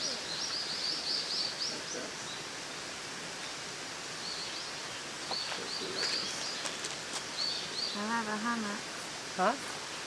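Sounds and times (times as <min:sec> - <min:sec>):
steady outdoor hiss: 0:00.0 - 0:10.0.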